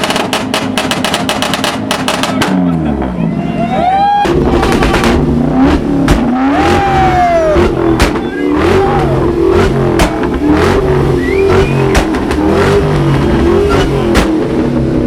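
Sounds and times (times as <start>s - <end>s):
exhaust cracks: 0.0s - 3.2s, 4.2s - 15.0s
car engine revving: 4.2s - 15.0s.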